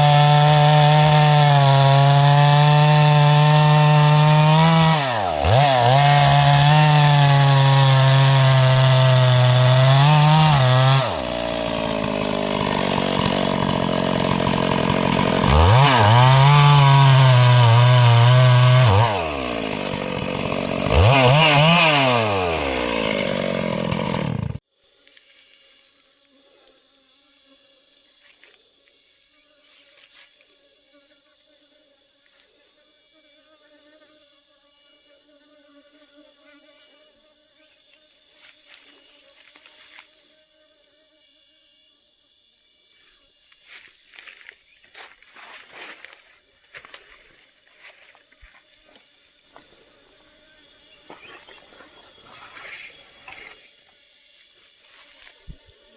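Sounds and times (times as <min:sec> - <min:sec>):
insect buzzing and chirring: 0:00.0 - 0:55.9
steady high-pitched hiss: 0:36.1 - 0:55.9.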